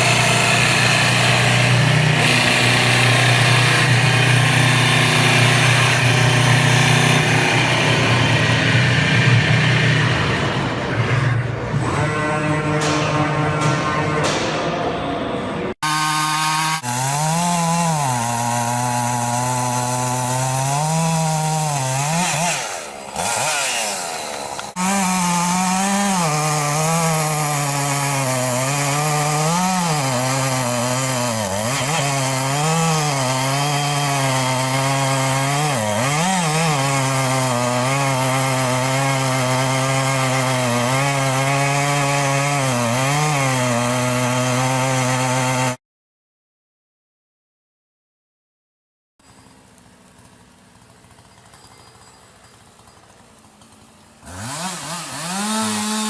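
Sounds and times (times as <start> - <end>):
chainsaw cutting at high revs: 0.0 - 10.3, 15.8 - 45.8, 50.2 - 51.6, 52.9 - 56.0.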